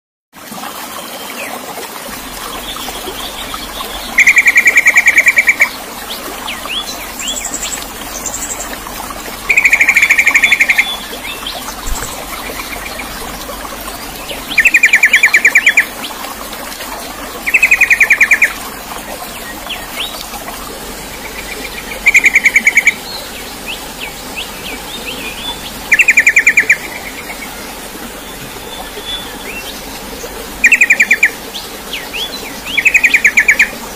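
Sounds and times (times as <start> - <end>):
songbird trilling: 25.0 - 26.9.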